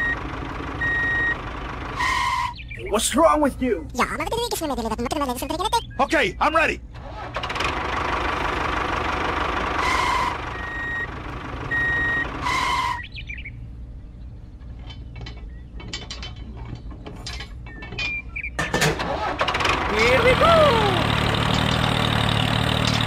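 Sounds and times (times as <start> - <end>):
vehicle running: 0.0 - 23.0
reversing beeper: 9.8 - 13.0.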